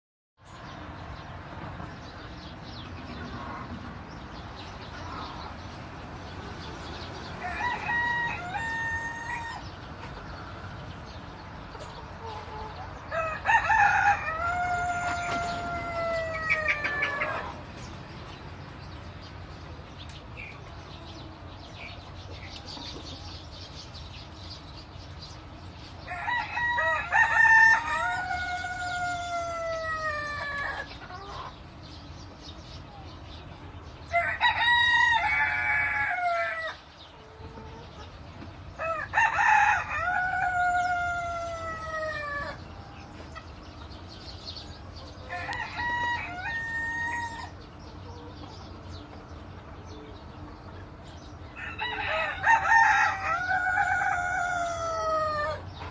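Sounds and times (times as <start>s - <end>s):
rooster crowing: 7.4s - 9.7s, 13.1s - 17.6s, 26.1s - 30.9s, 34.1s - 36.8s, 38.8s - 42.6s, 45.3s - 47.6s, 51.6s - 55.6s.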